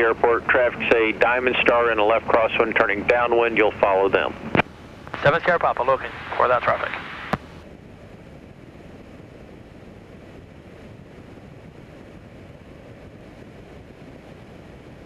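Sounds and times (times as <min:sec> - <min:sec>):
muffled aircraft engine and propeller drone: 0:00.0 - 0:15.0
radio click: 0:04.4 - 0:07.6.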